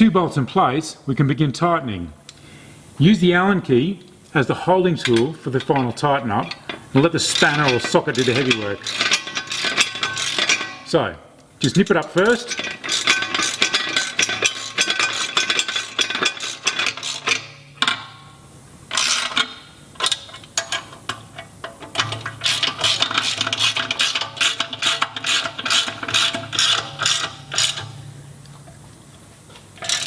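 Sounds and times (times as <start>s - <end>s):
socket ratchet clicking: 18.9s - 28.1s.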